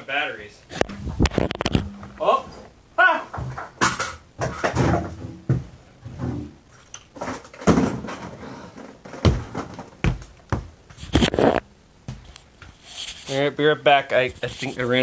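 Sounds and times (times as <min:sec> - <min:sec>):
knocks and thuds on refrigerator parts: 0:03.3 - 0:06.5, 0:07.2 - 0:08.4, 0:09.1 - 0:10.8.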